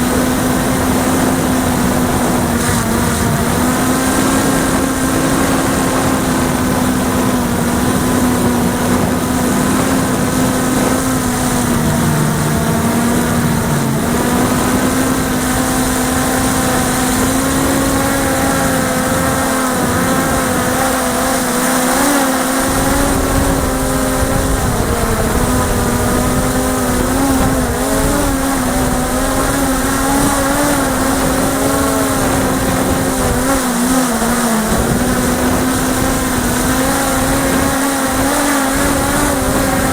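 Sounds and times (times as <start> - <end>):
drone motors humming: 0.0 - 39.9
wind rumble on microphone: 0.0 - 39.9.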